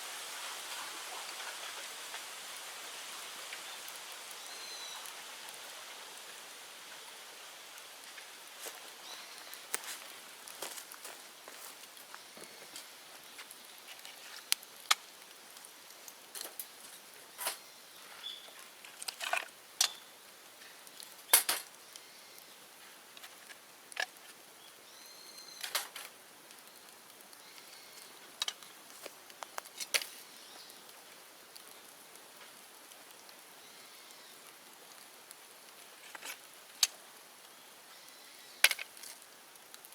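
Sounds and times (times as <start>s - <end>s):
bonfire crackling: 0.0s - 39.9s
low hiss: 0.0s - 39.9s
sharp pops and snaps: 7.8s - 17.6s, 25.6s - 33.4s, 34.4s - 39.9s.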